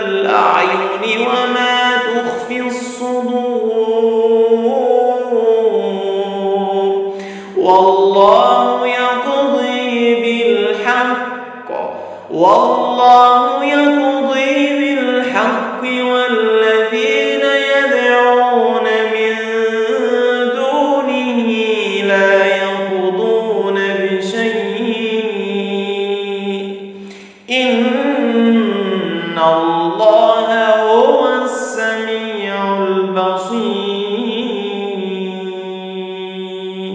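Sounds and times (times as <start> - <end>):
man chanting recitation: 0.0 - 36.9.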